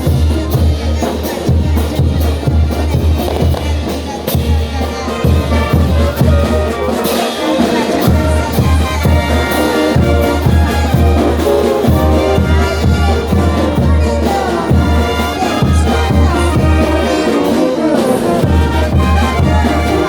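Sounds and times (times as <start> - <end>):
bass drum beat: 0.0 - 17.5, 18.2 - 20.0
trumpets and trombones melody: 0.0 - 20.0.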